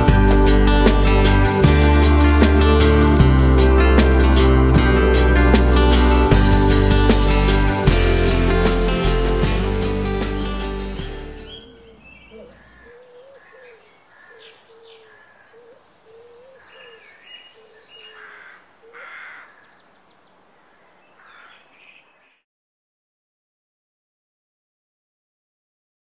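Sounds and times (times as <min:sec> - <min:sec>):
low wavering bird call: 0:11.4 - 0:19.7
harsh bird calls: 0:11.4 - 0:22.4
high bird chirps: 0:11.4 - 0:22.4.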